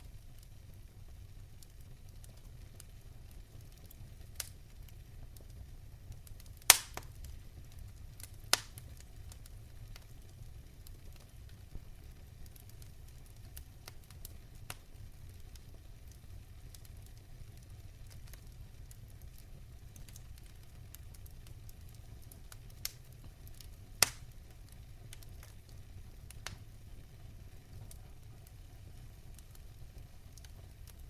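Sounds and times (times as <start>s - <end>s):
fire crackling: 0.0s - 31.0s
low rumble of flames: 0.0s - 31.0s
loud sharp pops: 6.7s - 7.1s, 8.5s - 8.8s, 24.0s - 24.2s.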